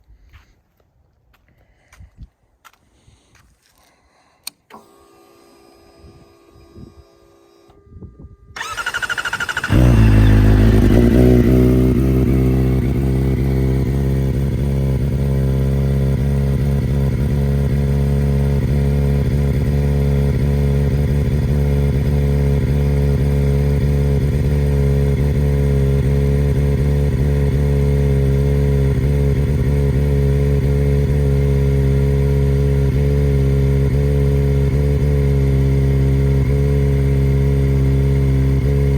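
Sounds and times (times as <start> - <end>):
starter motor cranking: 8.6 - 12.3
motorcycle engine idling: 8.6 - 38.9.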